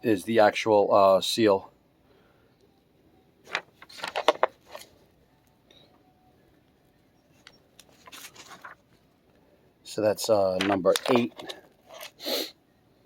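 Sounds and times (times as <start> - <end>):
handling clicks and rustles: 3.5 - 5.0, 7.3 - 9.1, 10.5 - 12.2.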